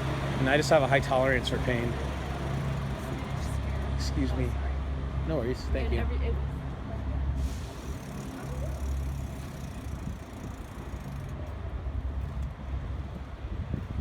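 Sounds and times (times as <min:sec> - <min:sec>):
bike tyre road noise: 0:00.0 - 0:05.4, 0:07.3 - 0:14.0
wind rumbling on microphone: 0:09.0 - 0:14.0.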